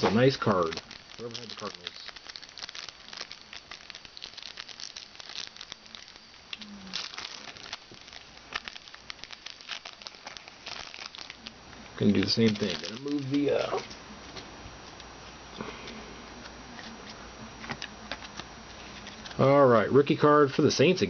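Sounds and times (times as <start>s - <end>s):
card pack wrapper crinkling: 0.0s - 13.9s.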